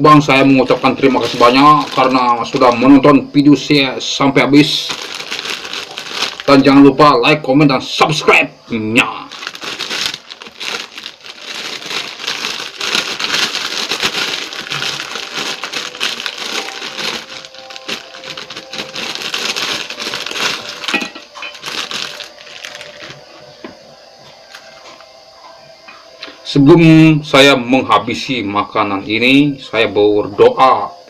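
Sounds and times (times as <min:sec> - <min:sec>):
crackers crinkling in a pack: 0:00.3 - 0:03.0, 0:04.6 - 0:06.9, 0:09.2 - 0:23.2.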